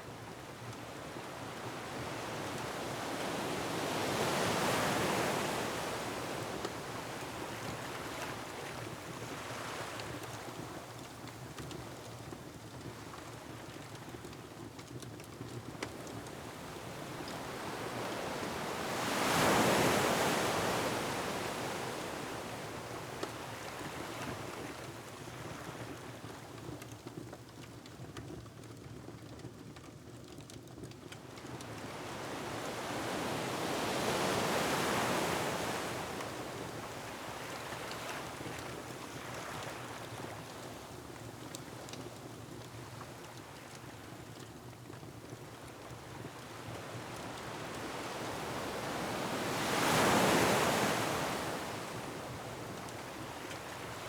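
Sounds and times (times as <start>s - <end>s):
wind: 0.0s - 54.0s
wood fire crackling: 11.0s - 16.9s, 26.9s - 31.9s
ocean waves on rocky shore: 16.3s - 24.3s, 31.6s - 40.2s, 46.1s - 54.0s.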